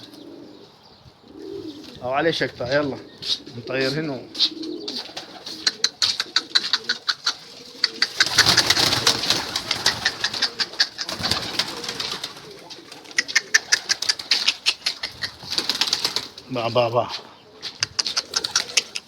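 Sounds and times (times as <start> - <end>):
pigeon wingbeats clapping: 4.4 - 16.4, 17.6 - 19.0.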